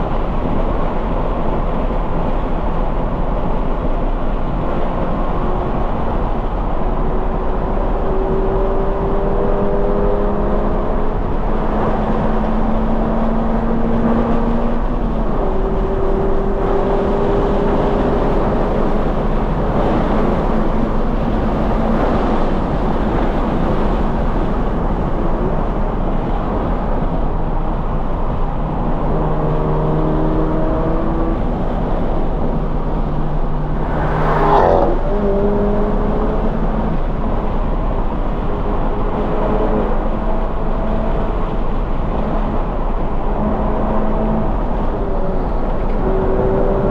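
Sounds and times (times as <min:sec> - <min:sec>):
wind noise: 0:00.0 - 0:46.9
car engine revving under load: 0:26.2 - 0:46.9.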